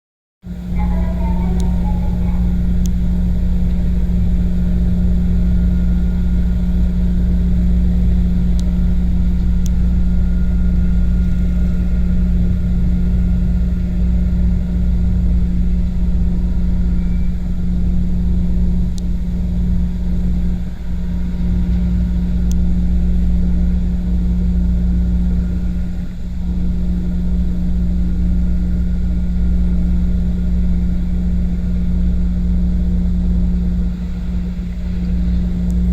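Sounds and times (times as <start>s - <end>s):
boat engine droning: 0.5s - 35.9s.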